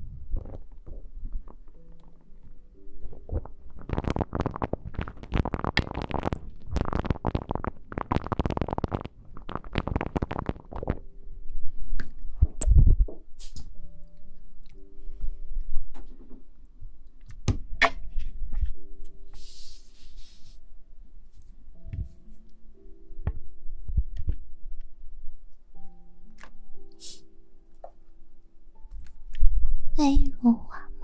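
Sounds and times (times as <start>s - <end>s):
faint background music: 0.0s - 31.0s
rustling and scratching at microphone: 3.1s - 11.1s, 11.8s - 13.6s.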